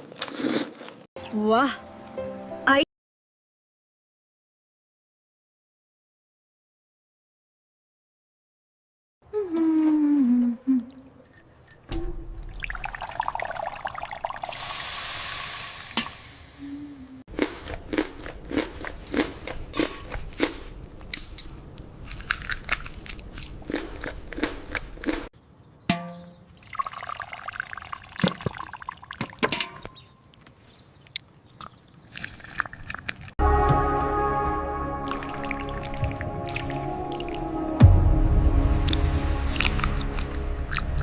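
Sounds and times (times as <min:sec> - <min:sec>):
hiss: 0:14.4 - 0:16.8
crunching and chewing: 0:17.3 - 0:25.3, 0:30.3 - 0:33.4.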